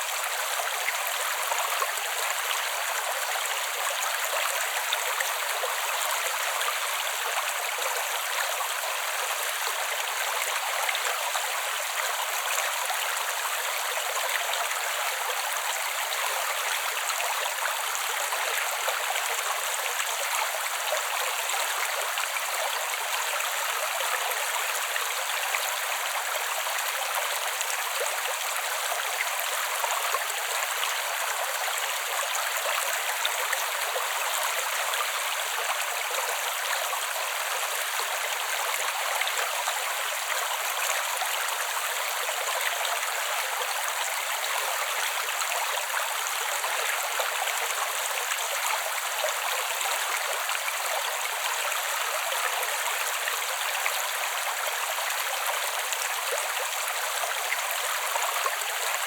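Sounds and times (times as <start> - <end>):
creek water flowing over stones: 0.0 - 59.0.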